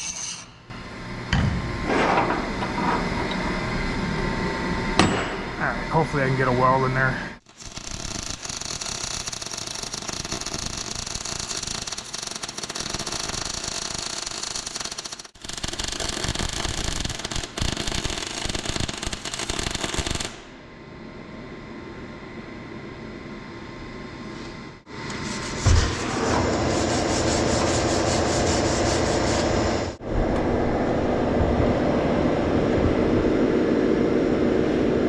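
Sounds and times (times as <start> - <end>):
welding arc crackling: 7.4 - 20.4.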